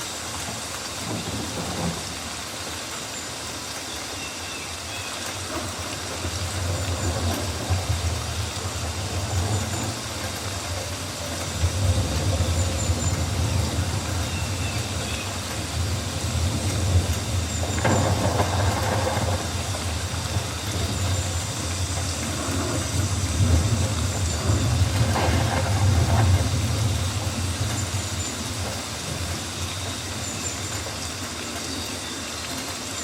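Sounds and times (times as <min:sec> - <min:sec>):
rain hissing: 0:00.0 - 0:33.0.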